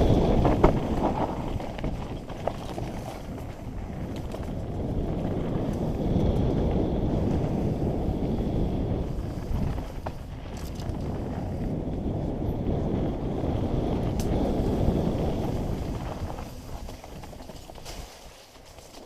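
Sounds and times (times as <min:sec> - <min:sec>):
wind rushing over microphone: 0:00.0 - 0:18.6
tyres rolling over dirt: 0:00.0 - 0:19.0
bike clicks and knocks: 0:00.1 - 0:06.5, 0:09.4 - 0:11.6, 0:13.9 - 0:19.0.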